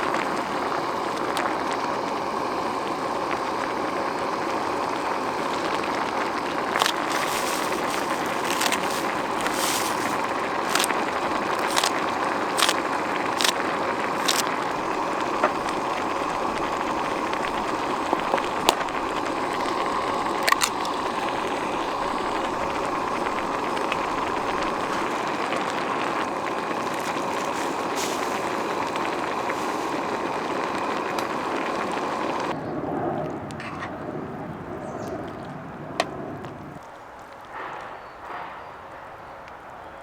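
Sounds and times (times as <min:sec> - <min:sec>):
gas stove hissing: 0:00.0 - 0:32.6.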